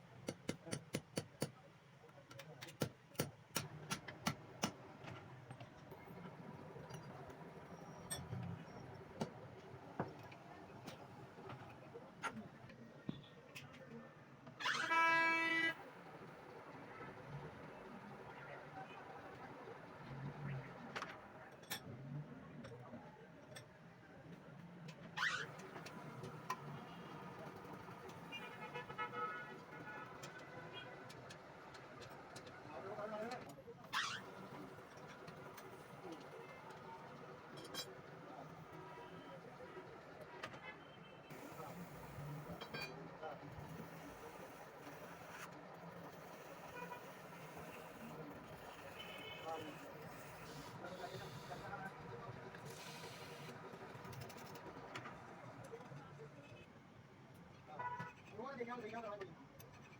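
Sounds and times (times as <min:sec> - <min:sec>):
faint steady background noise: 0:00.0 - 0:59.9.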